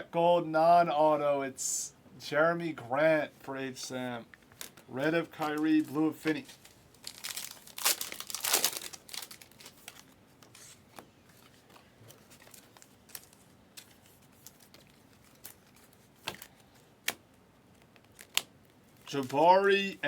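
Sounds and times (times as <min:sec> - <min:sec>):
foil wrapper crinkling and tearing: 0:05.4 - 0:10.7, 0:18.0 - 0:19.2.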